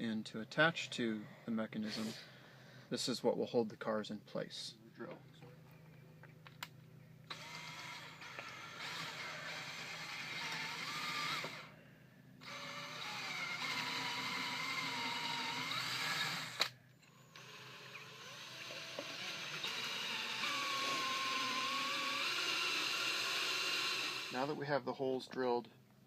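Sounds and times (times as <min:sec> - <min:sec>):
electric drill boring into wood: 0:07.3 - 0:11.7, 0:12.4 - 0:24.6.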